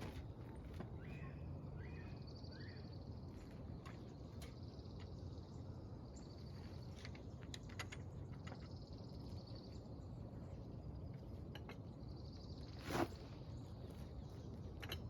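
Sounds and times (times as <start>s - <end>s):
tools and parts clicking: 14.7s - 15.0s.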